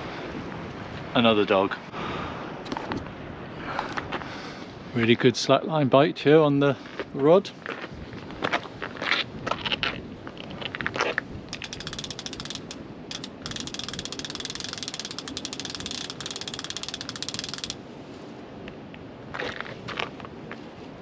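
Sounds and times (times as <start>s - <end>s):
fishing reel ratcheting clicks: 11.5s - 17.8s.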